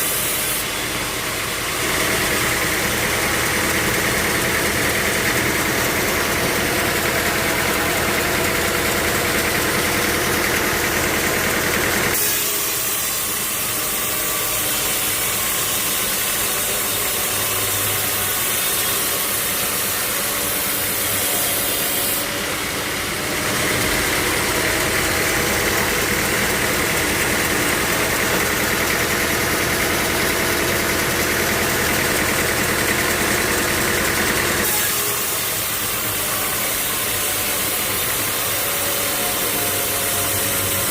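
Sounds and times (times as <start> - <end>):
sawmill machinery running: 0.0 - 40.9.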